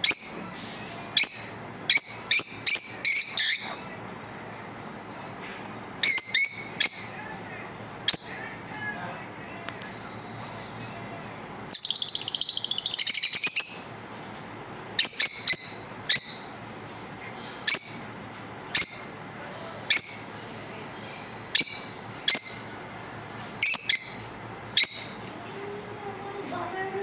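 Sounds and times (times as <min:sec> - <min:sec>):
bird chirping shrilly: 0:01.2 - 0:03.8, 0:06.0 - 0:07.2, 0:11.7 - 0:14.0, 0:15.0 - 0:16.6, 0:17.7 - 0:18.2, 0:23.6 - 0:25.2.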